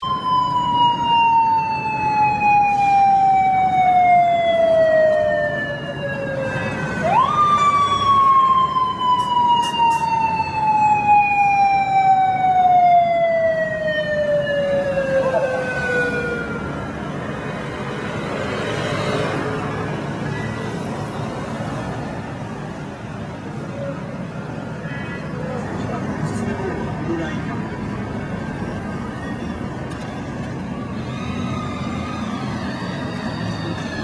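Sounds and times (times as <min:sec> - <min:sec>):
motorcycle siren wailing: 0:00.0 - 0:17.3, 0:30.7 - 0:34.0.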